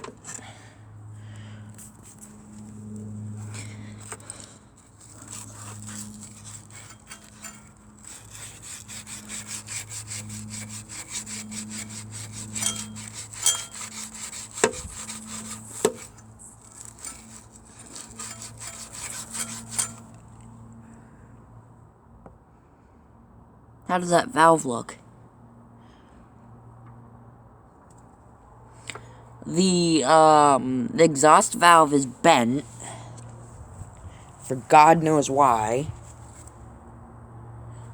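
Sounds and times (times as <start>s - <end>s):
hand scraping metal valve: 0.0s - 0.6s, 1.7s - 20.2s, 34.4s - 36.5s.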